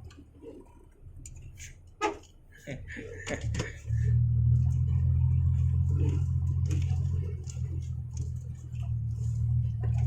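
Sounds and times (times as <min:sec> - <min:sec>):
diesel engine droning: 0:00.0 - 0:10.0
faint rattles and knocks: 0:04.5 - 0:10.0.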